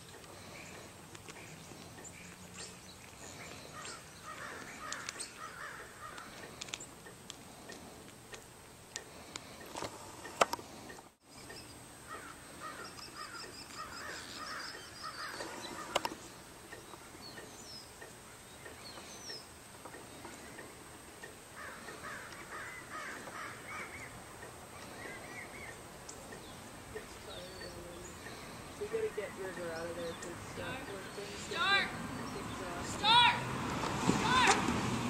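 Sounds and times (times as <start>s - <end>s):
birds calling harshly: 0.0s - 8.0s, 10.6s - 33.4s
scattered clicks: 3.9s - 11.6s.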